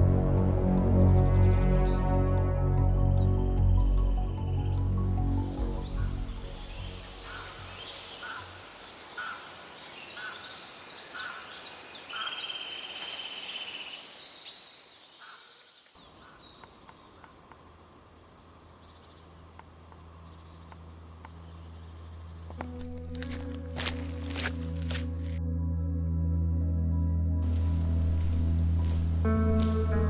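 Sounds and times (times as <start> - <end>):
small birds chirping and trilling: 6.1 - 25.4.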